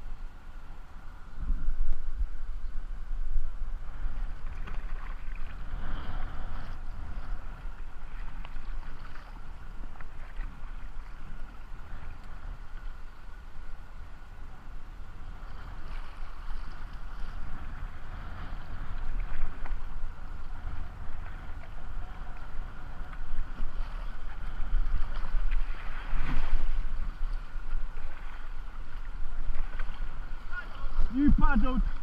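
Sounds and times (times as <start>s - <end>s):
wind on microphone: 0.0s - 32.0s
water rushing and splashing: 15.2s - 32.0s.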